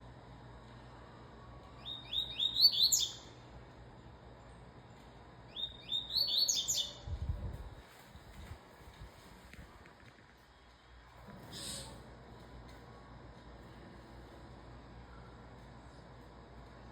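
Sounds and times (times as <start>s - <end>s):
bird singing whistled phrases: 1.8s - 3.3s, 5.5s - 7.0s.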